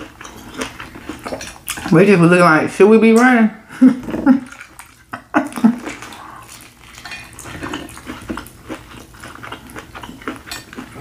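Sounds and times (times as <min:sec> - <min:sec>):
chewing with wet mouth clicks: 0:00.0 - 0:01.9, 0:04.5 - 0:11.0.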